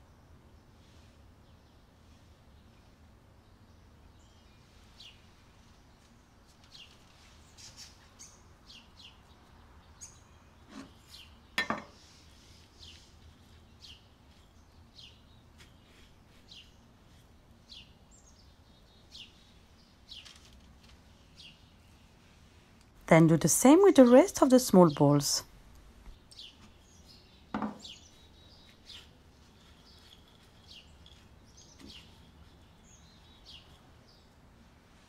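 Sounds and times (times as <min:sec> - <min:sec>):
small bird chirping: 0:04.2 - 0:22.2, 0:26.0 - 0:34.4.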